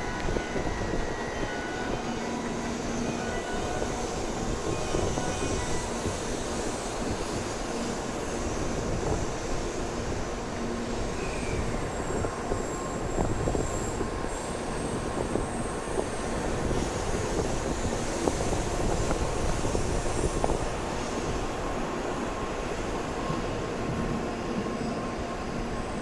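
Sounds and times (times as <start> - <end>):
train wheels rumbling: 10.8 - 26.0.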